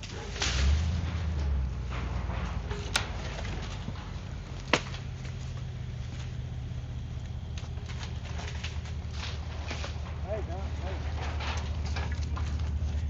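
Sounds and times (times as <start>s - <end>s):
sharp clanks: 0.0s - 6.6s
engine humming: 0.0s - 13.0s.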